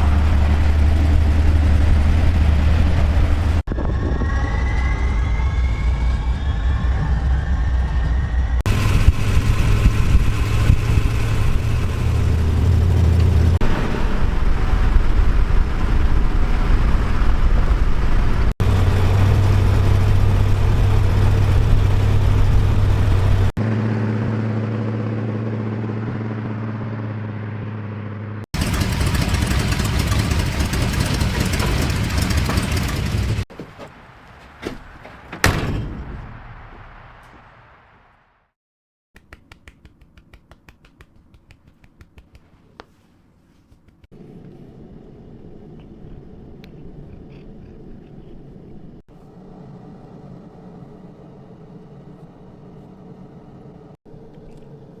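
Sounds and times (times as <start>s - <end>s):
car engine running: 0.0s - 3.7s, 8.6s - 33.5s.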